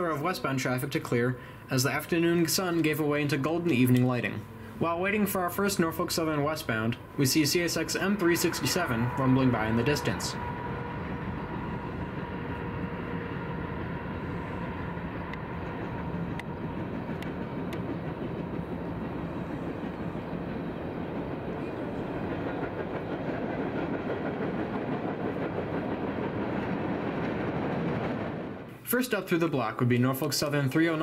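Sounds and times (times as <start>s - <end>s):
distant freight train rumbling: 0.0s - 29.4s
faint rail clicks: 15.3s - 19.4s.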